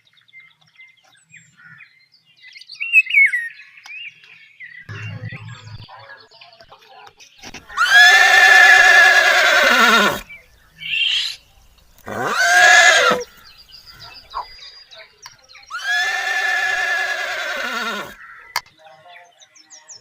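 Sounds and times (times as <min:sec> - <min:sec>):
animal calling: 0:07.4 - 0:14.6, 0:15.6 - 0:18.6.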